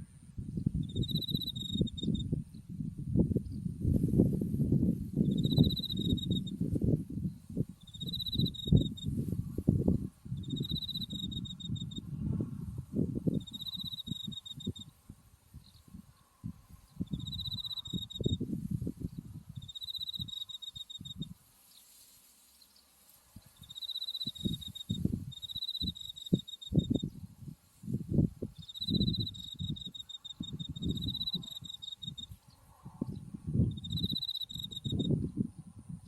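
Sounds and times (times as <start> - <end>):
crickets chirping: 0.2 - 2.4, 3.4 - 12.1, 12.8 - 15.0, 15.6 - 22.5, 23.5 - 35.5
low rumbling on microphone: 12.0 - 13.5.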